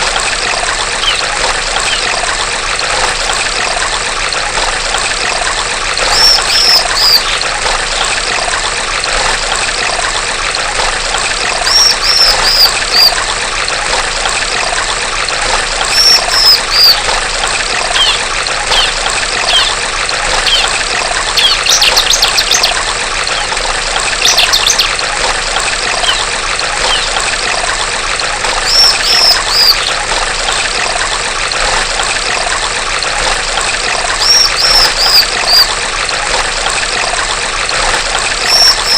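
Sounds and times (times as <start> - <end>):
small stream trickling: 0.0 - 38.9
bird calling high arched notes: 1.0 - 2.2, 6.0 - 7.4, 11.6 - 13.1, 15.9 - 17.0, 17.9 - 20.7, 21.4 - 23.5, 24.2 - 24.9, 25.9 - 27.2, 28.6 - 30.0, 34.2 - 35.7, 38.4 - 38.9
bird rattling trills: 1.0 - 2.2, 6.0 - 7.5, 11.6 - 13.2, 15.9 - 17.1, 17.7 - 23.6, 24.2 - 25.0, 25.9 - 27.3, 28.6 - 30.0, 34.2 - 35.8, 38.4 - 38.9.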